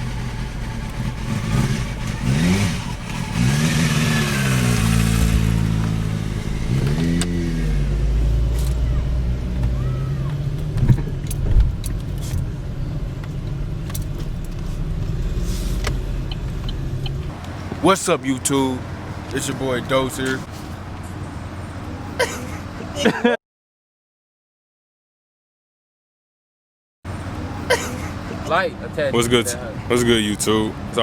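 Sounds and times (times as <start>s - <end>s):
motorcycle engine revving and idling: 0.0s - 17.4s.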